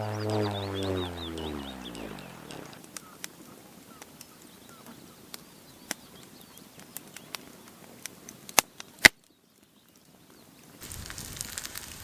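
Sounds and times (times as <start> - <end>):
faint bird chirps: 0.0 - 7.9
sharp cracks: 0.0 - 9.3.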